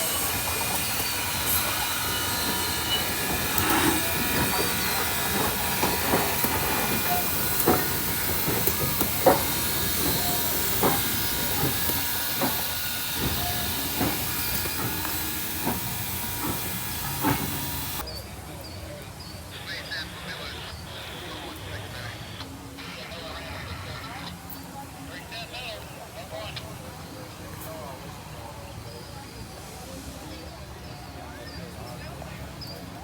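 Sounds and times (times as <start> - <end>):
steam hissing: 0.0 - 18.1.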